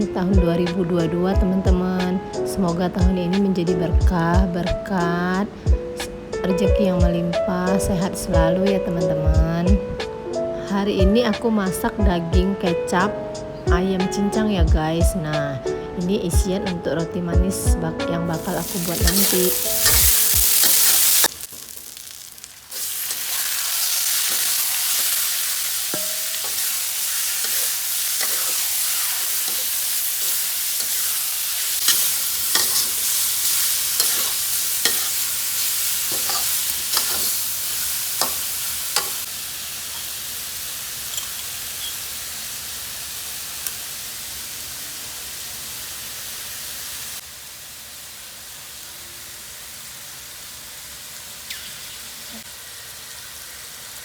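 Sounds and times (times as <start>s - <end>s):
meat sizzling in a pan: 18.4s - 54.0s.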